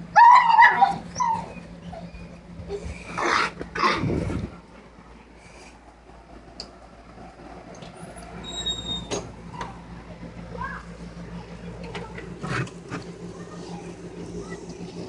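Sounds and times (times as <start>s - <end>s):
dog whining: 0.2s - 4.1s.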